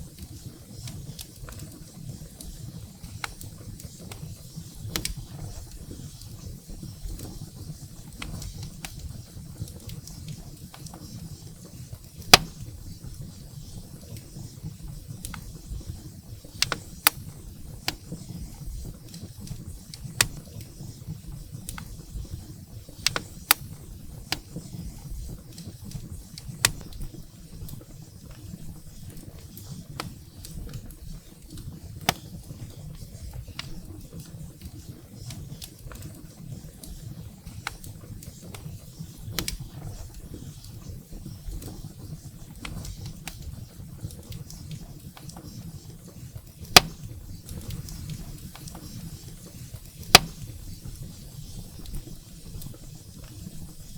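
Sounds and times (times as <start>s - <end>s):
firewood crackling and popping: 0.0s - 53.9s
low rumble of flames: 0.0s - 53.9s.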